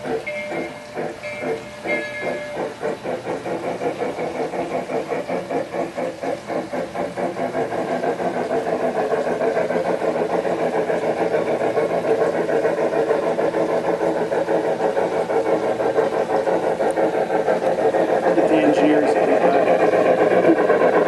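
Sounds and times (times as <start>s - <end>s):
model train running on track: 0.0s - 21.0s.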